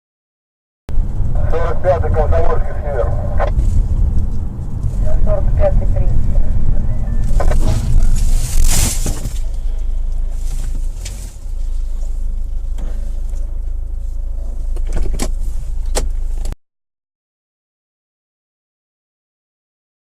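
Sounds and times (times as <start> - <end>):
car engine and road rumble: 0.9 - 16.6.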